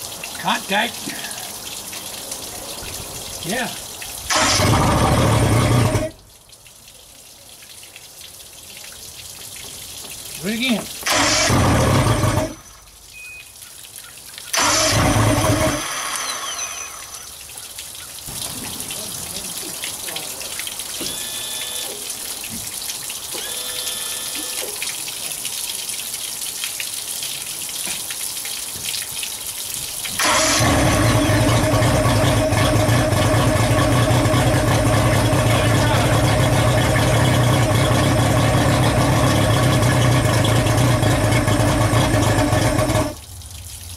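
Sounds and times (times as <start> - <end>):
running water hiss: 0.0 - 4.7, 6.0 - 31.8
outboard engine cranking: 4.3 - 6.2, 11.0 - 12.7, 14.5 - 17.0, 30.2 - 43.2.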